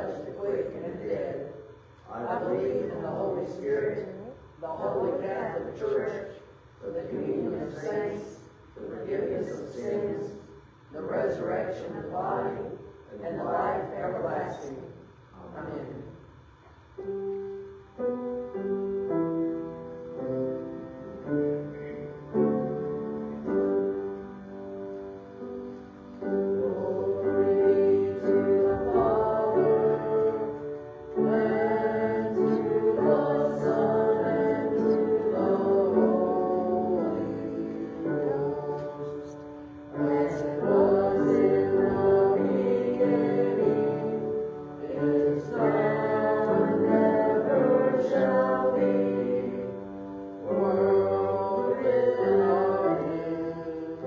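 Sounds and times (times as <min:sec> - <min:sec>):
congregation singing a hymn: 0:00.0 - 0:16.4, 0:17.0 - 0:54.0.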